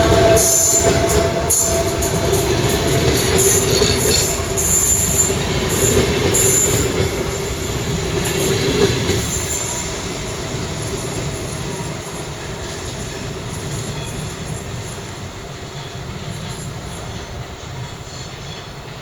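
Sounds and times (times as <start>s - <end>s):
train running noise: 0.0s - 19.0s
train wheels squealing: 0.0s - 19.0s.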